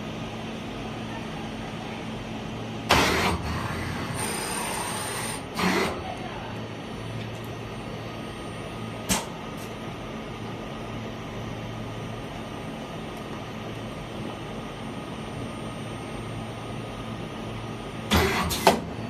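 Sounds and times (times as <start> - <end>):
welding machine electrical hum: 0.0 - 19.0.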